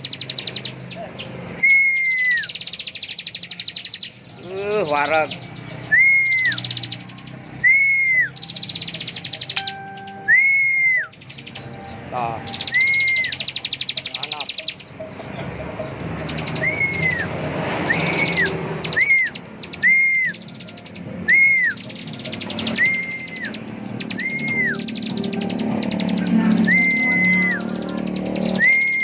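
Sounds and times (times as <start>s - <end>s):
bird buzzy trills: 0.0s - 29.0s
bird whistles rising and falling: 1.5s - 4.2s, 5.7s - 7.0s, 7.6s - 11.6s, 12.5s - 14.6s, 16.3s - 29.0s.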